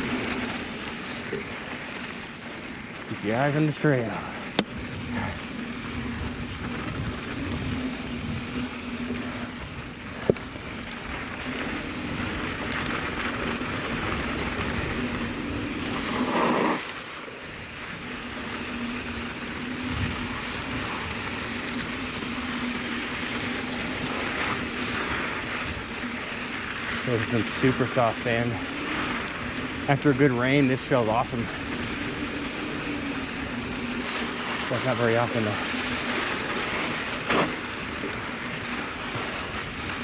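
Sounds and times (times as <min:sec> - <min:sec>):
tyre noise on loose dirt: 0:00.0 - 0:40.0
wind on microphone: 0:04.6 - 0:10.1, 0:18.0 - 0:38.4.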